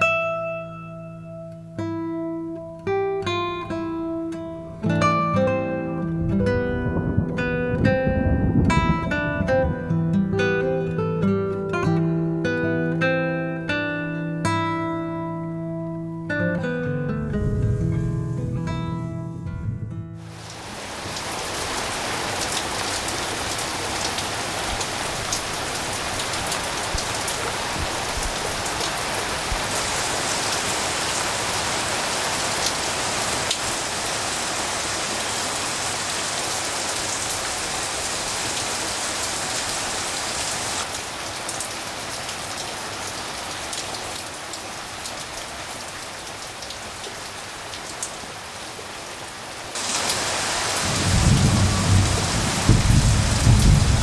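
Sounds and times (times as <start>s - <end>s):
steady rain falling: 1.6s - 17.3s, 20.2s - 54.0s
sharp raindrop impacts: 49.7s - 54.0s.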